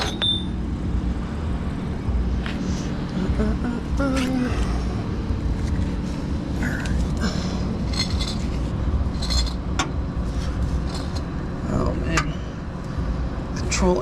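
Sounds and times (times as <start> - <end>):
low rumble: 0.0 - 14.0
metal hooks clinking: 7.8 - 9.9.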